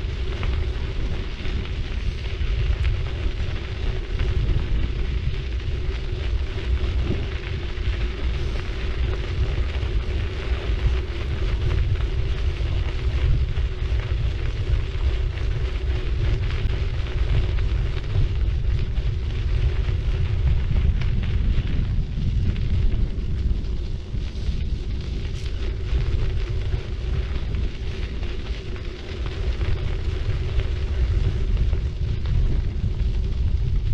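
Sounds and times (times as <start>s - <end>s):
bicycle tyres rolling on road: 0.0s - 33.9s
wind rumbling on microphone: 0.0s - 33.9s.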